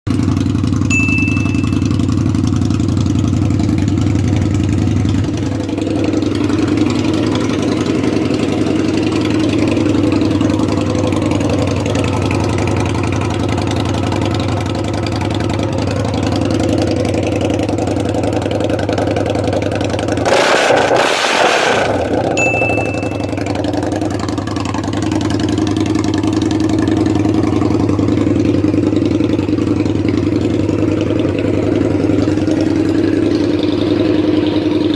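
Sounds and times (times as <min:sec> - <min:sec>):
motorcycle engine idling: 0:00.1 - 0:20.3, 0:22.0 - 0:34.9
short high beeps: 0:00.9 - 0:02.1, 0:22.4 - 0:23.6.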